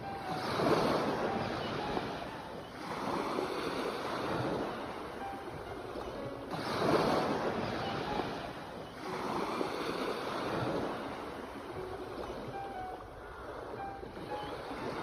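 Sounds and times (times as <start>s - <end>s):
sea waves breaking: 0.0s - 15.0s.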